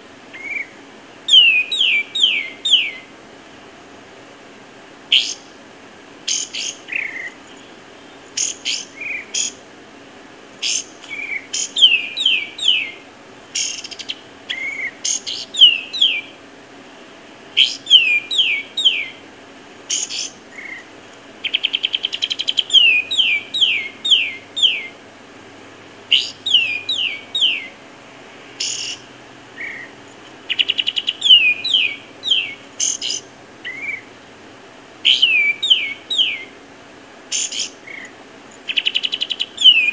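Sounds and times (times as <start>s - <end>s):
birds chirping: 0.0s - 39.9s
bird rattling trill: 6.2s - 9.7s, 10.3s - 16.5s, 17.5s - 25.2s, 26.0s - 27.8s, 28.6s - 34.1s, 35.0s - 39.9s.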